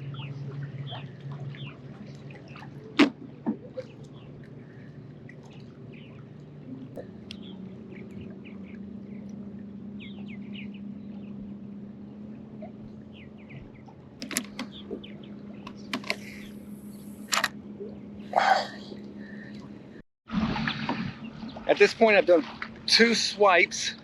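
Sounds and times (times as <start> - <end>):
steady low hum: 0.0 - 24.0
bird chirps: 9.9 - 11.4
sharp clicks: 14.2 - 17.5.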